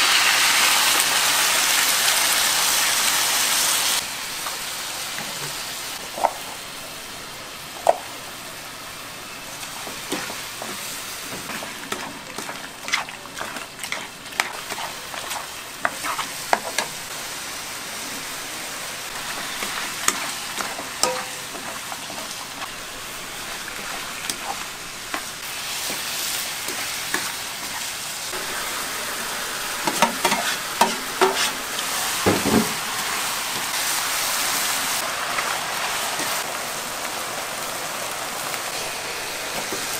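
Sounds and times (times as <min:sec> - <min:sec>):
food sizzling in a pan: 0:00.0 - 0:39.9
utensil clinking against pan: 0:21.0 - 0:21.7.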